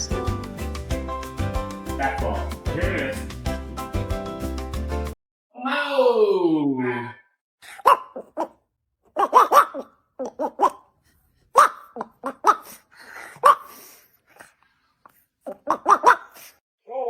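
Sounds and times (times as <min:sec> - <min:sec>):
dog barking: 0:07.8 - 0:08.5, 0:09.2 - 0:10.8, 0:13.4 - 0:13.7, 0:15.7 - 0:16.3.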